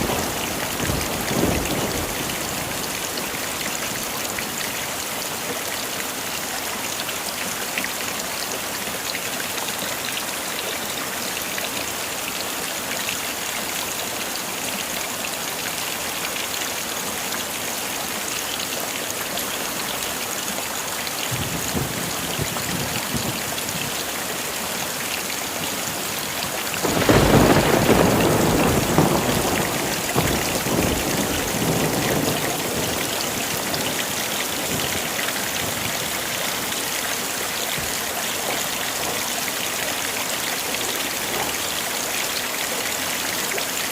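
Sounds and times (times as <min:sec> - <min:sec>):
loud thunderclap: 0:00.0 - 0:02.8, 0:26.8 - 0:34.0
rumble of thunder: 0:00.0 - 0:03.0, 0:26.8 - 0:35.0
heavy rain falling: 0:00.0 - 0:43.9.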